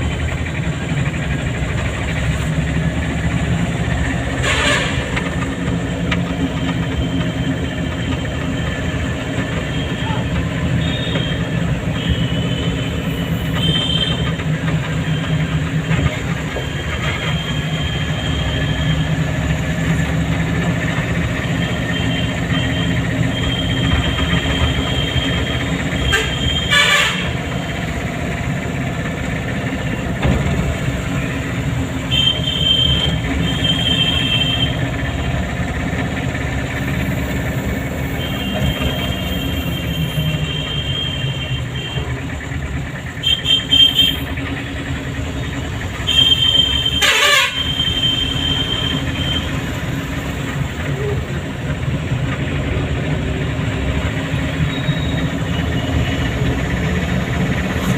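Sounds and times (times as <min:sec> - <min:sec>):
car engine running: 0:00.0 - 0:47.1.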